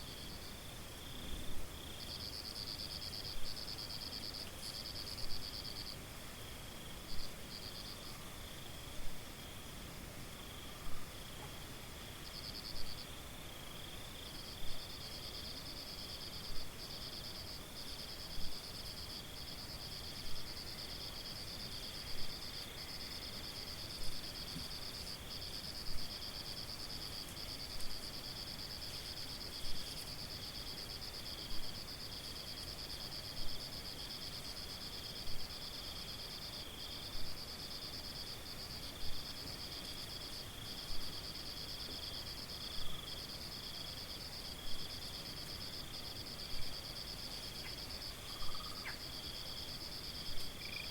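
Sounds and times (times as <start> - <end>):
crickets trilling: 13.8 - 50.9.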